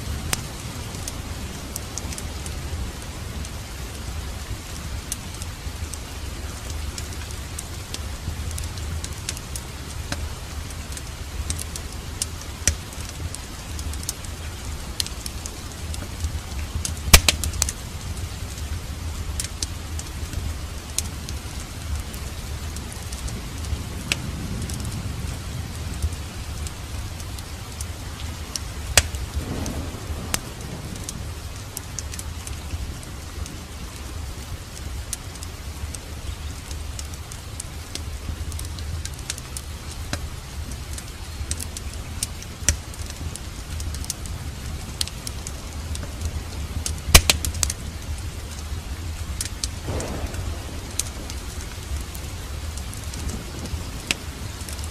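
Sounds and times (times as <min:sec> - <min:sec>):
steady rain: 0:00.0 - 0:54.9
wood fire crackling: 0:00.0 - 0:54.9
fire pops: 0:10.9 - 0:13.2, 0:15.0 - 0:17.8, 0:28.5 - 0:31.2, 0:45.9 - 0:48.7, 0:49.3 - 0:54.9.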